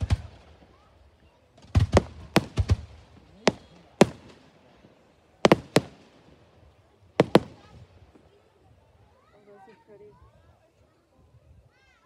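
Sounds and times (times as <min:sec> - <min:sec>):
fireworks bangs: 0:00.0 - 0:00.8, 0:01.6 - 0:08.2.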